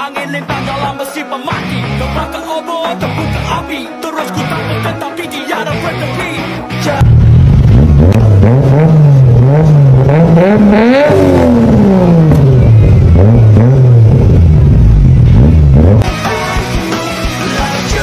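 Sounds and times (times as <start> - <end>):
music: 0.0 - 18.0
car engine revving: 7.0 - 16.4.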